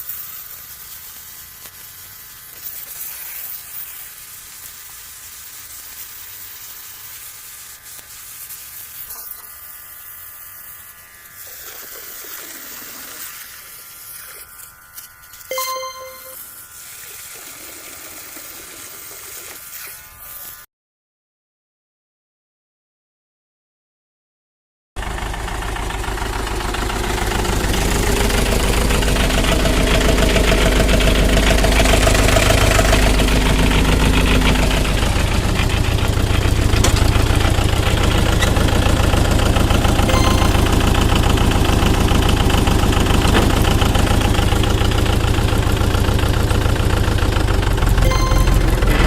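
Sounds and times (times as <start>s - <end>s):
tractor engine chugging: 25.0s - 49.0s.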